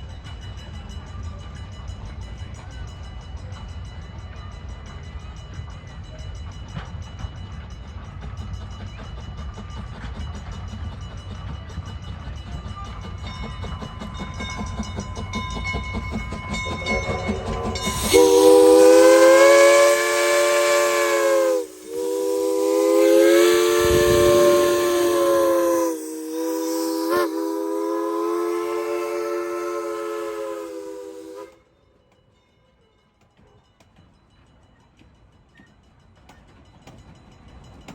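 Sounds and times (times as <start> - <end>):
train wheels rumbling on rails: 0.0 - 31.6
locomotive chime whistle blasts: 15.2 - 32.0.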